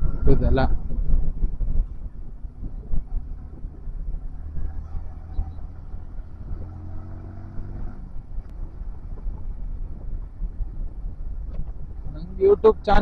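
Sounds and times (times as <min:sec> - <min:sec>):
motorcycle engine rumble: 0:00.0 - 0:13.0.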